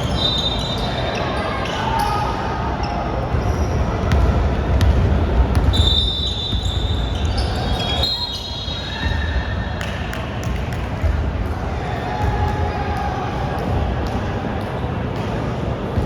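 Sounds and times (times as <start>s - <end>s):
shoe squeaks: 0.0s - 2.3s, 5.6s - 9.3s
basketball bouncing in gym: 3.3s - 8.0s, 8.9s - 11.6s, 12.2s - 12.6s.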